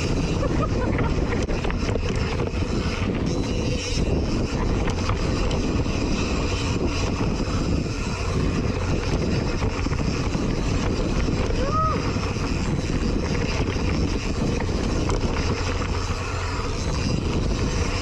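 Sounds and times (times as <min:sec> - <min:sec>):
bike clicks and rattles: 0:00.0 - 0:18.0
bike tyres rolling over dirt: 0:00.0 - 0:18.0
wind on microphone: 0:00.0 - 0:18.0.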